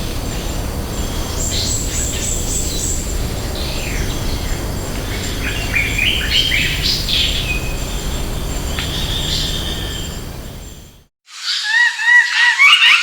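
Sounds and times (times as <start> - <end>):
low background rumble: 0.0 - 11.1
wild birds singing: 0.0 - 13.0.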